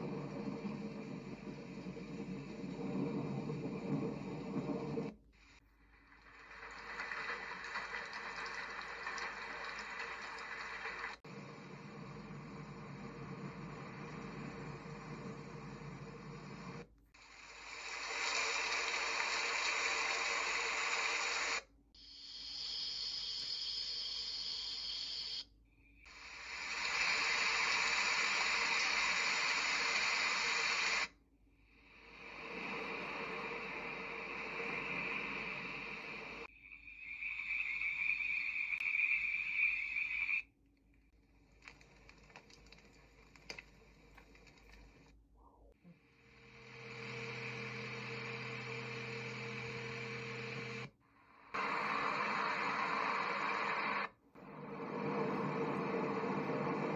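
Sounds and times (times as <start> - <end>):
broad white noise hiss: 0.0 - 25.4, 26.1 - 31.2
thin high-pitched hiss: 17.2 - 31.1, 32.0 - 40.5
high-pitched chirring chorus: 36.5 - 40.4
scattered clicks: 38.8 - 45.2.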